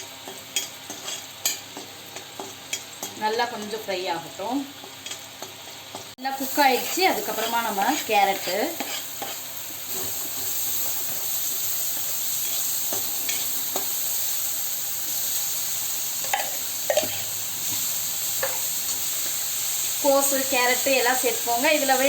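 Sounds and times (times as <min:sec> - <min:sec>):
food sizzling in hot oil: 0:00.0 - 0:22.0
spatula scraping pan: 0:00.6 - 0:03.6, 0:04.8 - 0:14.0.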